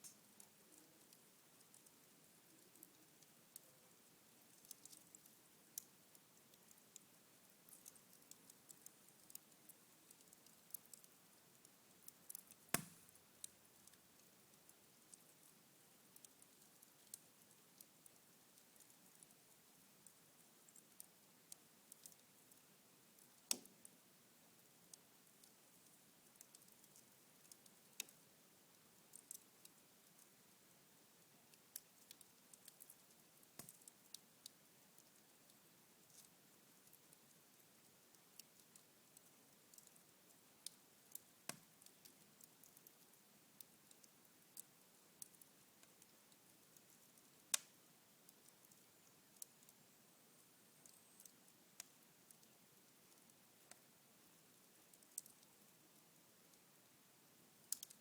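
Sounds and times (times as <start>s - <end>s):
embers crackling: 4.4s - 14.3s, 47.5s - 47.7s, 57.6s - 58.0s
fire crackling and popping: 4.4s - 15.5s, 16.2s - 19.3s, 20.1s - 22.6s, 23.2s - 23.9s, 25.4s - 28.2s, 29.1s - 30.3s, 31.5s - 35.2s, 39.7s - 40.0s, 40.6s - 42.8s, 43.9s - 47.8s, 54.8s - 55.5s, 57.6s - 58.0s.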